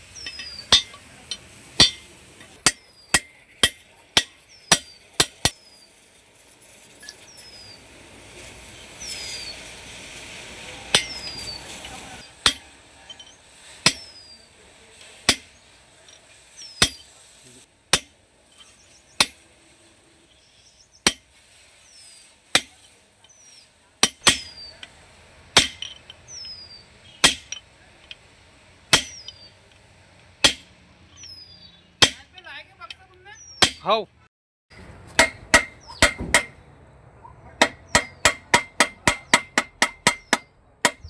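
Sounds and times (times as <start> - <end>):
hammer blows: 0.0 - 5.7, 10.7 - 14.4, 34.7 - 36.7, 37.5 - 41.0.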